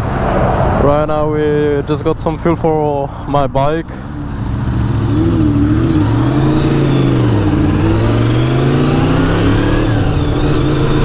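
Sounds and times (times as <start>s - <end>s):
motorcycle engine accelerating: 4.0s - 11.0s.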